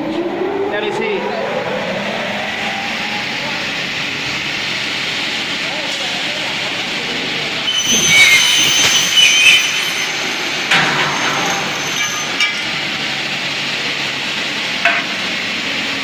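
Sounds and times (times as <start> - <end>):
high ringing: 7.6 - 13.0.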